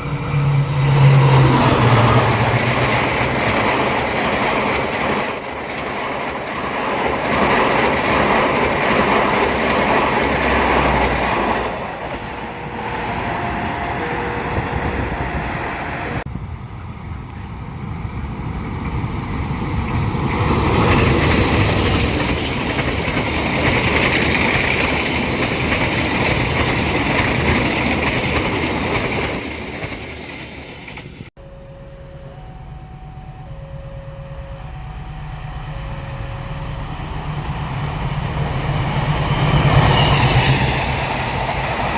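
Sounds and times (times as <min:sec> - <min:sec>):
trains passing with wheel clatter: 0:00.0 - 0:41.9
alternating two-note tone: 0:31.4 - 0:37.8.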